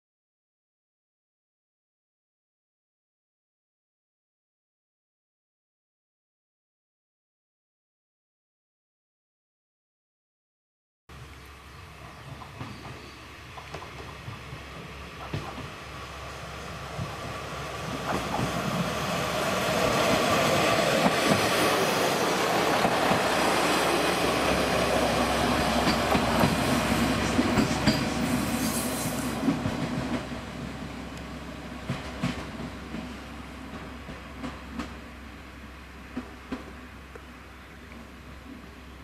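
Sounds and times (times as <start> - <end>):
diesel railcar running on rails: 11.1 - 39.0
wheels squealing on rails: 11.7 - 29.8.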